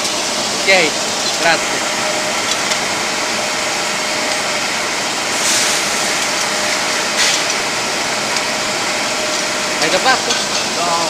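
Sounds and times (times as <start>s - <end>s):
grinding machine whirring: 0.0s - 11.0s
hiss bursts: 5.3s - 6.3s.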